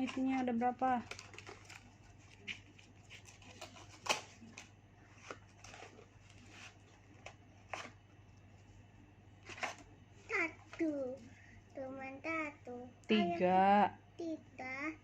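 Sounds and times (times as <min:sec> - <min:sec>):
package rustling and clicking: 0:01.0 - 0:08.0.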